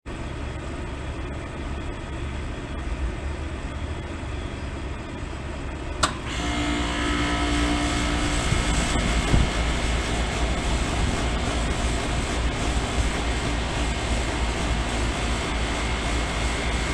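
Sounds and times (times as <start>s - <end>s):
air conditioner compressor humming: 0.1s - 16.9s
sharp click: 6.0s - 6.2s.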